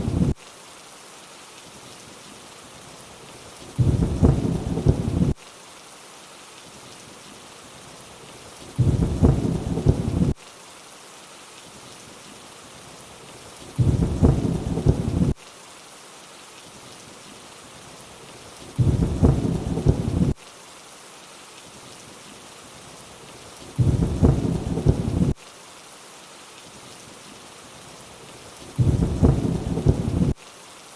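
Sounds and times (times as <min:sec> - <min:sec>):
low rumble of thunder: 0:00.0 - 0:00.3, 0:03.8 - 0:05.4, 0:08.8 - 0:10.3, 0:13.8 - 0:15.4, 0:18.8 - 0:20.4, 0:23.8 - 0:25.4, 0:28.8 - 0:30.4
rainfall hiss: 0:00.0 - 0:30.9.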